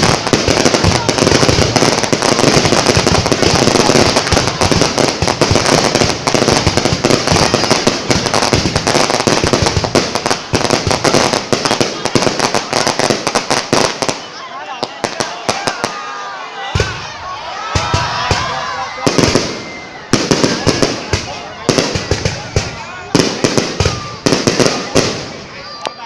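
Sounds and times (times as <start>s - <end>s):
fireworks popping and crackling: 0.0s - 16.0s, 17.7s - 26.0s.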